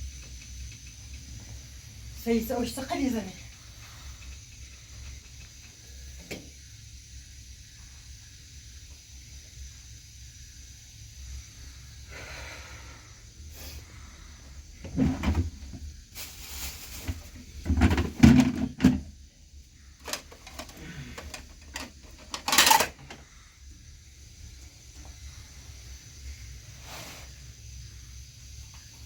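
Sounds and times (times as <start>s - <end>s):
objects knocking and thudding: 14.8s - 16.3s, 16.9s - 19.2s.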